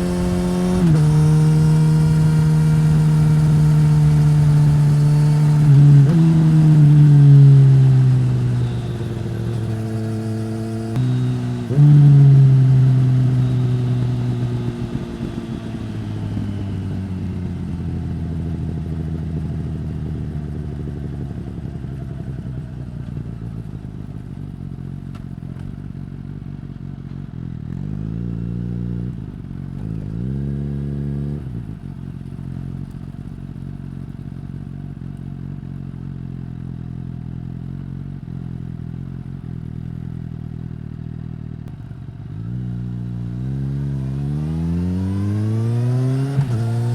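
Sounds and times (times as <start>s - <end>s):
motorcycle engine revving: 0.0s - 21.6s, 27.6s - 32.9s, 41.6s - 46.9s.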